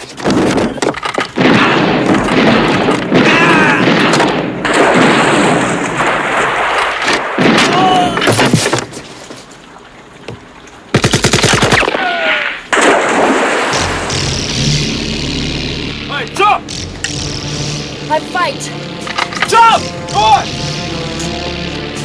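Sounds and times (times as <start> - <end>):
automatic gunfire: 1.4 - 7.8, 11.0 - 12.0
explosion blasts: 1.4 - 8.2, 11.8 - 16.8
people yelling: 3.2 - 4.0, 7.6 - 8.3, 11.9 - 12.7, 19.4 - 20.5.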